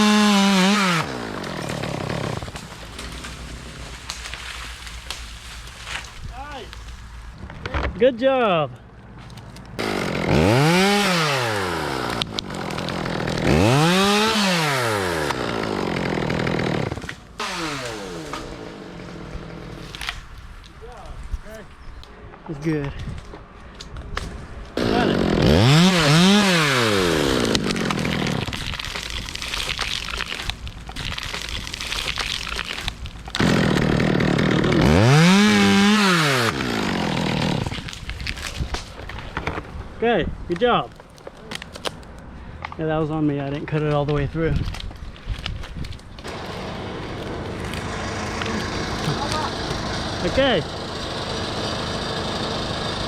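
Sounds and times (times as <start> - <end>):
chainsaw revving: 0.0 - 2.6, 9.8 - 19.8, 24.8 - 28.5, 33.4 - 37.9, 46.2 - 53.0.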